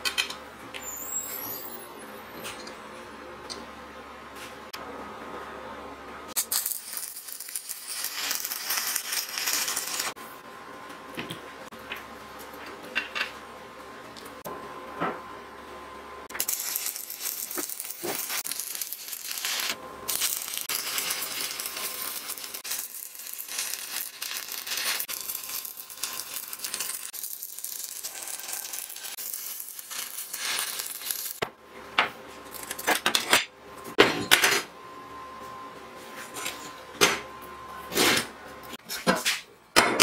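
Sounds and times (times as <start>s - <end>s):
arc welder crackling: 6.3s - 10.3s, 16.3s - 31.4s.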